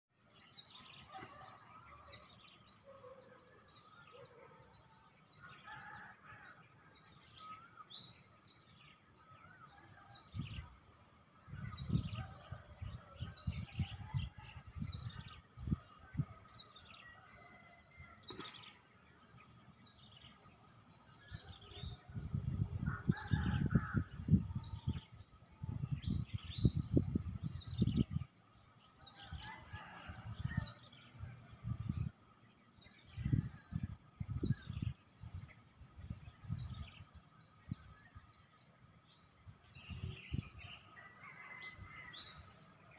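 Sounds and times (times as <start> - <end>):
low rumbling buffets on microphone: 11.5 - 16.4, 21.8 - 28.4, 29.6 - 32.3, 33.1 - 38.1.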